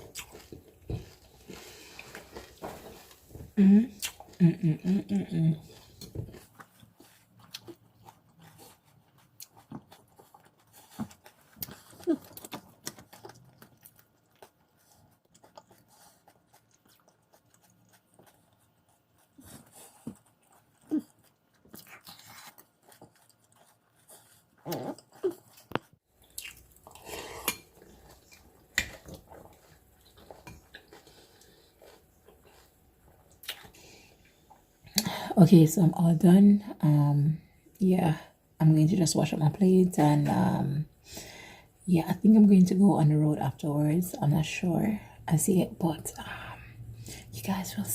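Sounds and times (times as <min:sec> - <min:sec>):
person chewing: 0:00.0 - 0:35.1.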